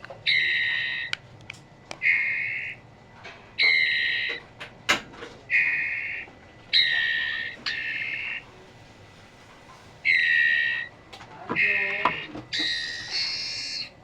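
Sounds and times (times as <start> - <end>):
guineafowl calling harshly: 0.2 - 1.2, 2.0 - 2.8, 3.6 - 4.4, 5.5 - 8.5, 10.0 - 14.0.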